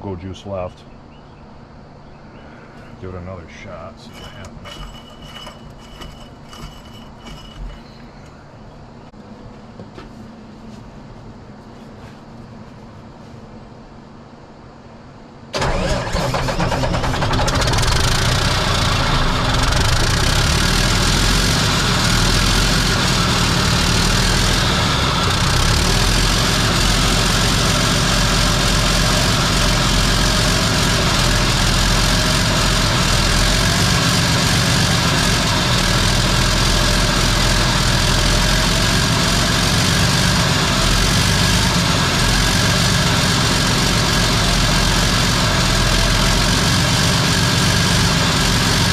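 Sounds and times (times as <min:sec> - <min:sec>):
diesel truck engine running: 0:15.5 - 0:48.9.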